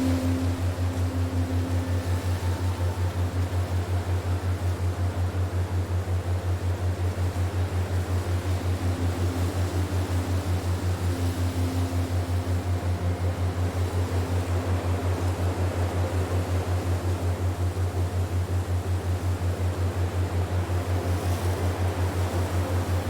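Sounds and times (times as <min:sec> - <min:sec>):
steady hiss: 0:00.0 - 0:04.7
faint held tones: 0:00.0 - 0:05.8, 0:07.8 - 0:17.3
low pulsing hum: 0:00.0 - 0:23.0.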